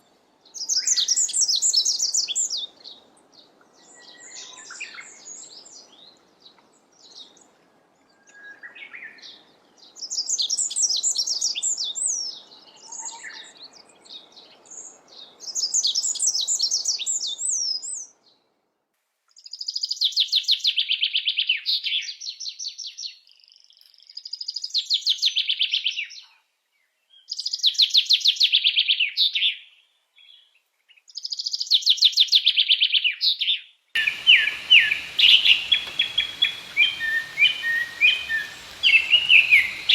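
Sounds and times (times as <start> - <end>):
songbird singing: 34.0 - 39.9.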